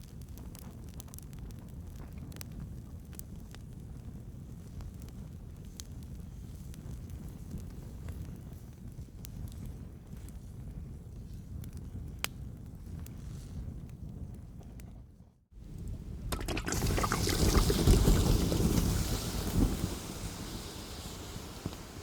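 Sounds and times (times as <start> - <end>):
fire popping and crackling: 15.6 - 22.0
wood fire rumbling: 15.6 - 22.0.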